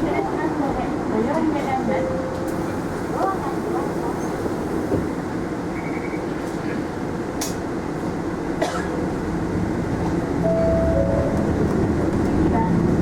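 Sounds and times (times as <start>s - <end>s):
bus engine and road rumble: 0.0s - 13.0s
brief tone: 10.5s - 11.4s.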